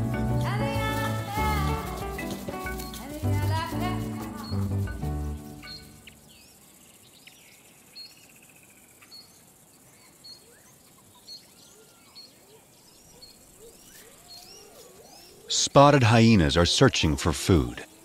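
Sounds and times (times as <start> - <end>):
background music: 0.0 - 6.3
birds chirping: 0.0 - 18.0.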